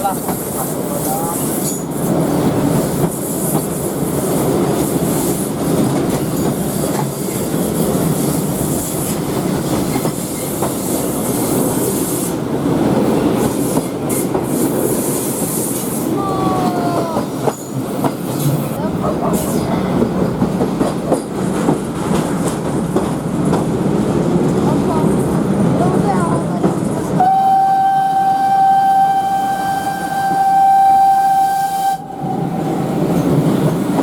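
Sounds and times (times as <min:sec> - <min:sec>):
train wheels clattering on rails: 0:00.0 - 0:31.3, 0:32.1 - 0:34.0
train wheel squeal: 0:00.3 - 0:12.4.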